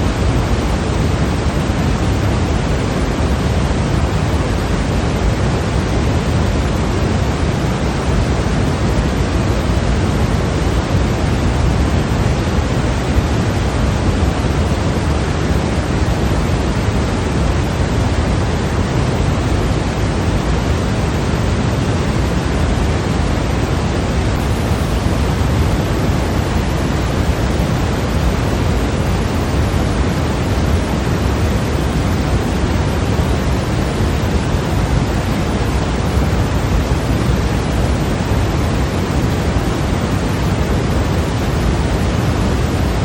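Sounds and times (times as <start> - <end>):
white noise hiss: 0.0 - 43.0.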